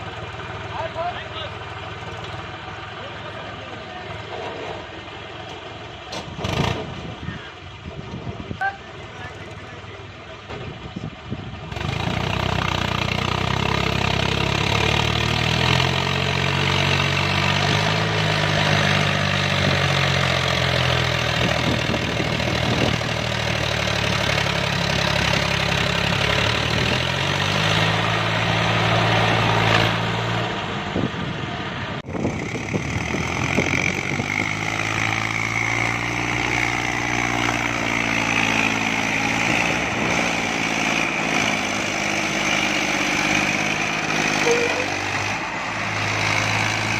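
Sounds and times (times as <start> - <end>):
tractor engine running: 0.0 - 46.9
high whine: 44.4 - 45.1.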